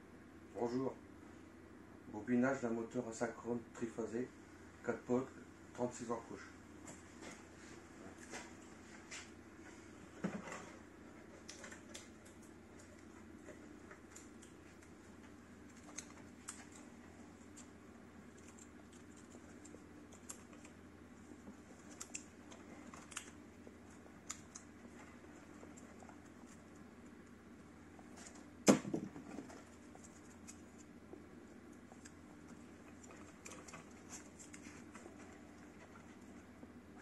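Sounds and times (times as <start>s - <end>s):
clicks and scratches of wire: 10.5s - 27.4s, 29.3s - 37.0s.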